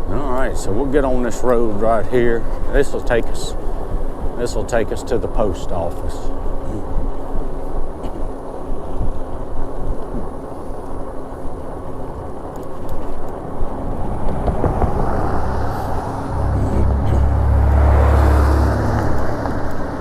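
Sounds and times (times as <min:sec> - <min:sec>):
tyre and road noise: 0:05.5 - 0:20.0
wind rushing over microphone: 0:13.0 - 0:20.0.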